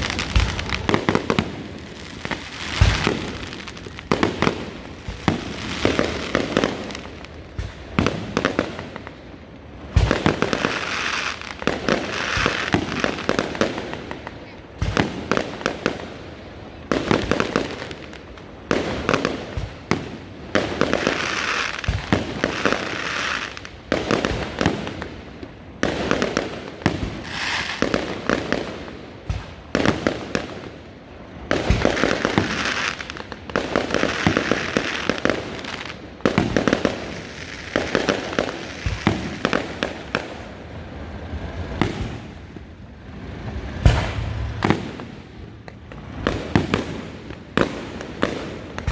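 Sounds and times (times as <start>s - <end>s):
fireworks crackling: 0.0s - 48.9s
firework shells bursting: 43.5s - 46.9s.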